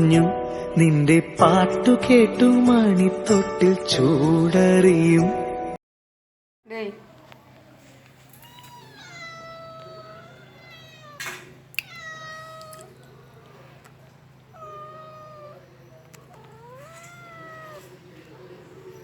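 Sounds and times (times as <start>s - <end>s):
cat meowing: 8.3s - 13.7s, 14.4s - 18.8s.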